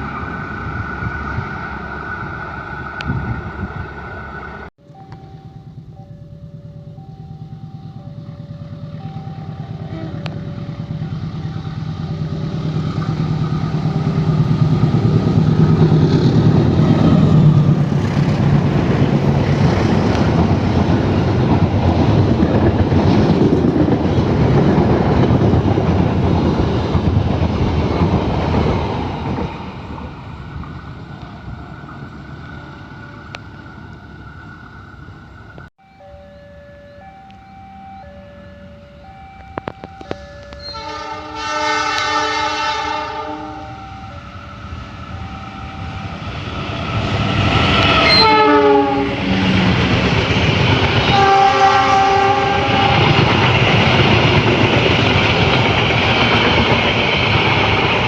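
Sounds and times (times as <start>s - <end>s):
diesel locomotive engine: 0.0s - 58.0s
level crossing bell two-tone: 4.8s - 12.4s, 35.8s - 41.0s, 45.1s - 46.3s
train wheels clattering on rails: 10.4s - 30.8s, 49.2s - 58.0s.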